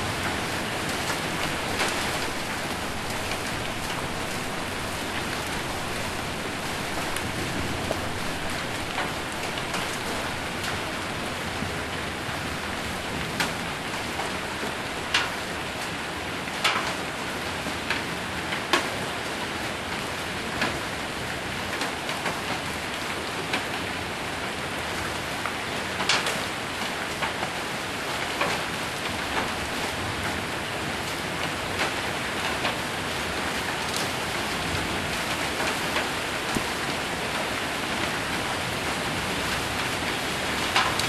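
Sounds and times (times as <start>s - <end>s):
heavy rain on a metal roof: 0.0s - 41.0s
hailstones knocking: 40.6s - 41.0s.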